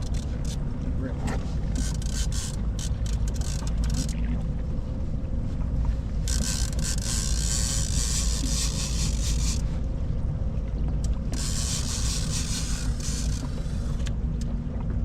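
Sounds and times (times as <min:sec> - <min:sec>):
faint constant hum: 0:00.0 - 0:15.0
fishing boat engine rumble: 0:00.0 - 0:15.0.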